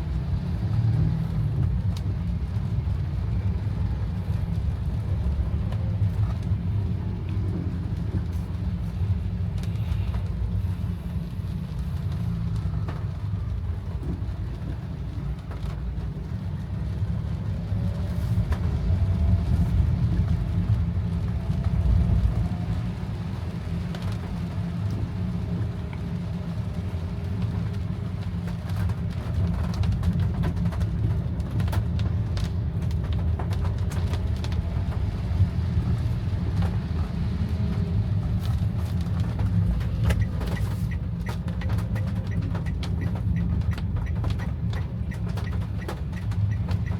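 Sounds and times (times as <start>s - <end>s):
car driving in rain: 0.0s - 46.9s.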